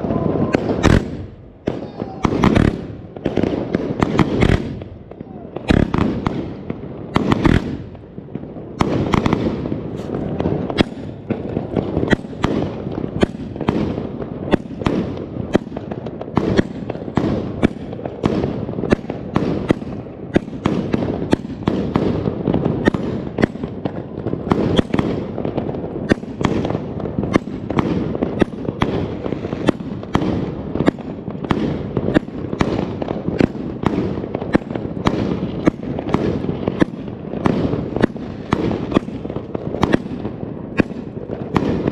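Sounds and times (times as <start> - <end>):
firework cake bangs and crackles: 0.0 - 41.9.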